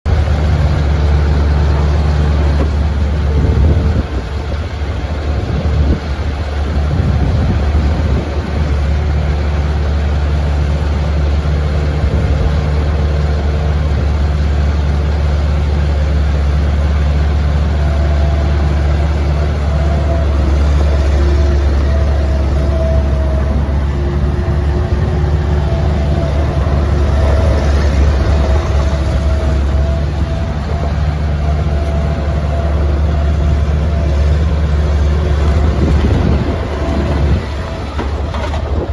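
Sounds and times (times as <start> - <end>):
loader diesel engine running: 0.0 - 38.9.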